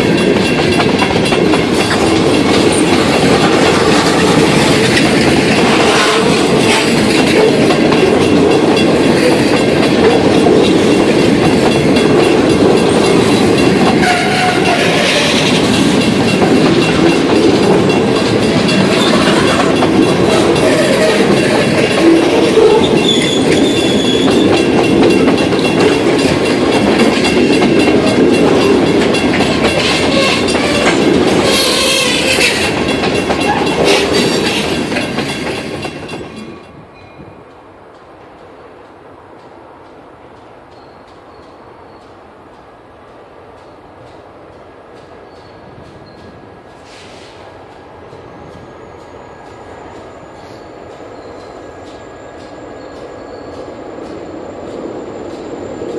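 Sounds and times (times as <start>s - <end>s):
train wheels clattering on rails: 0.0s - 55.9s
high wheel squeal: 18.4s - 24.6s, 29.7s - 32.8s.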